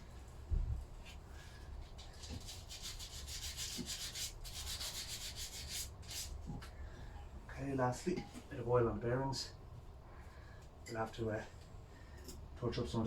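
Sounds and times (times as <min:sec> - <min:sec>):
hand sanding with sanding block: 0:02.2 - 0:06.4.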